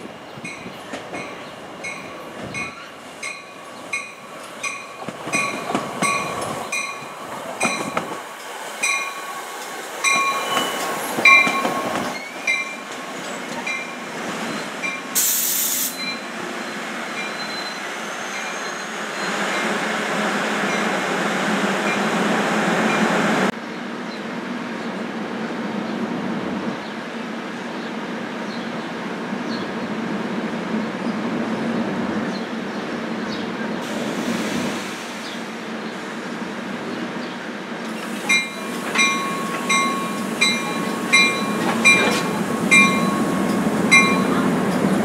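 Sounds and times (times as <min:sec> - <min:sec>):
train cars rumbling past: 0:00.0 - 0:45.0
train bell ringing: 0:00.4 - 0:08.0, 0:08.8 - 0:09.4, 0:10.0 - 0:13.0, 0:13.6 - 0:15.1, 0:15.9 - 0:16.4, 0:17.2 - 0:17.8, 0:38.3 - 0:44.8
air hiss: 0:15.1 - 0:16.0, 0:33.8 - 0:35.6.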